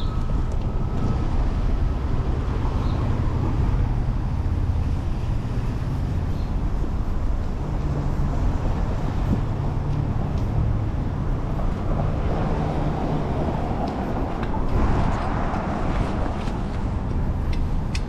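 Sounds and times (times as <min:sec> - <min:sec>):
traffic: 0:00.0 - 0:18.0
wind rumbling on microphone: 0:00.0 - 0:18.0.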